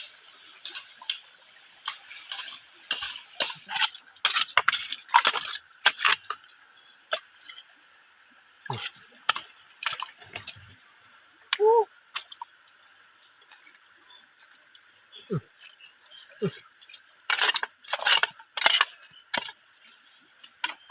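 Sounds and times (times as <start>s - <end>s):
water splashing and dripping: 0.0s - 20.9s.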